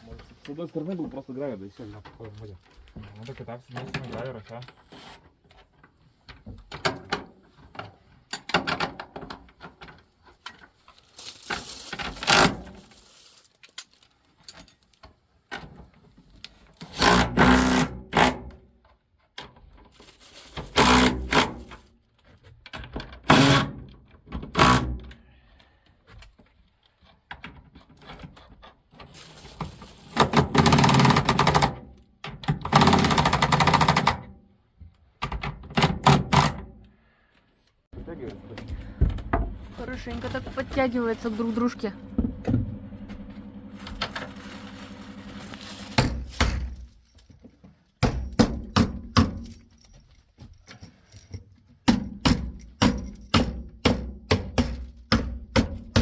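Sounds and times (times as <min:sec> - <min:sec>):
power drill driving bolts: 0:12.2 - 0:12.6, 0:16.8 - 0:18.5, 0:20.8 - 0:21.6, 0:23.2 - 0:23.8, 0:24.5 - 0:25.1, 0:32.5 - 0:34.2, 0:35.7 - 0:36.6.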